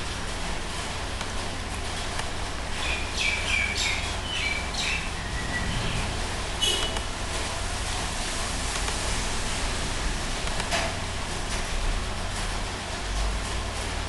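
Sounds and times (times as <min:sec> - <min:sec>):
low hum: 0:04.1 - 0:08.1.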